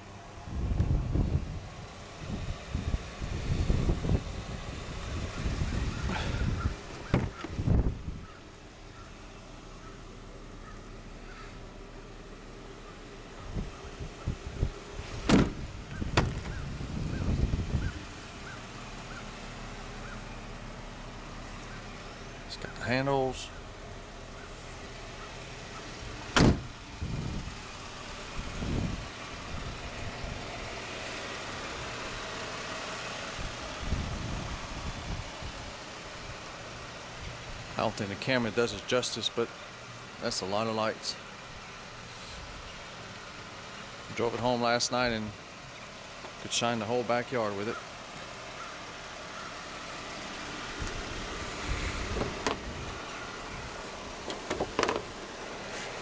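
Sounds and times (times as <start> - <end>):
handling noise rumble: 0.0 - 19.3
car engine idling: 0.0 - 56.0
low thumps: 5.5 - 8.2, 13.5 - 17.9, 26.3 - 27.4
hood latches clicking: 6.8 - 7.8, 15.0 - 16.6, 25.8 - 26.8, 54.2 - 55.2.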